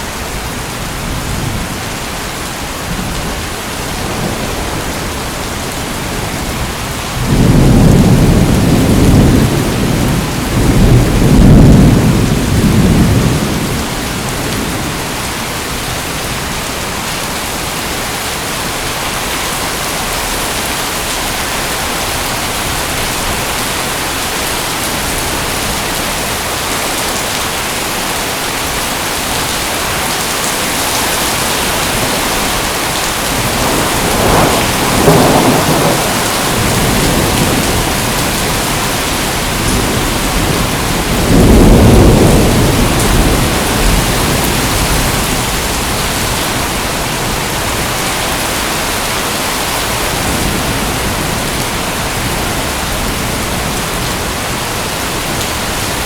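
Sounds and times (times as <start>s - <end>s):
heavy rain hissing: 0.0s - 56.0s
thunder rolling: 6.5s - 15.0s, 30.8s - 48.0s.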